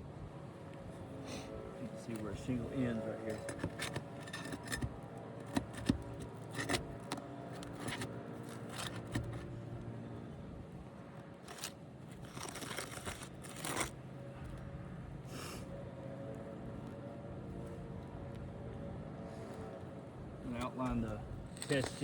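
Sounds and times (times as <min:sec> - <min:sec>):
scraping on roof shingles: 0:03.2 - 0:09.6, 0:11.4 - 0:13.9.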